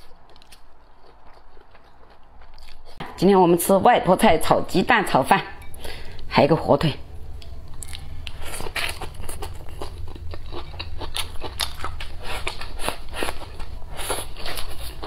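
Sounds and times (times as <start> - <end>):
wet chewing clicks: 0.0 - 3.0, 7.3 - 15.0.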